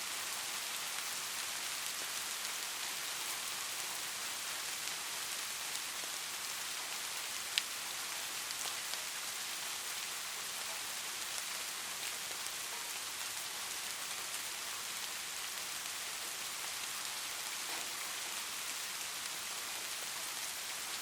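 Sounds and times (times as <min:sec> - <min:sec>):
light rain hiss: 0:00.0 - 0:21.0
raindrop ticks: 0:07.5 - 0:07.7.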